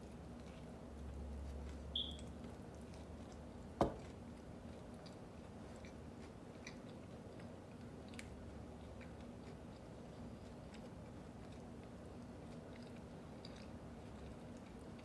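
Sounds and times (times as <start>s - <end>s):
chewing food: 0.0s - 15.0s
sharp knock: 3.8s - 4.0s.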